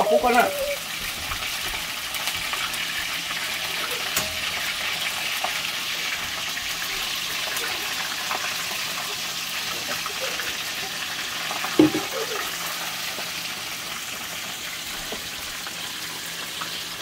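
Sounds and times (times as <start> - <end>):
fish sizzling in hot oil: 0.0 - 17.0
metal tongs clicking on wok: 4.1 - 4.6.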